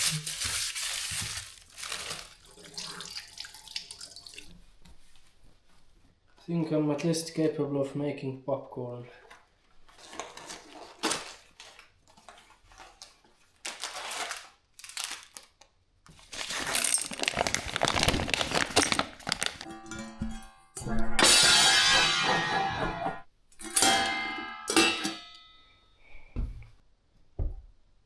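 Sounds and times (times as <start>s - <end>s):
crinkling and rattling: 0.0s - 2.8s, 9.3s - 20.6s
plucked-string music: 19.6s - 21.2s.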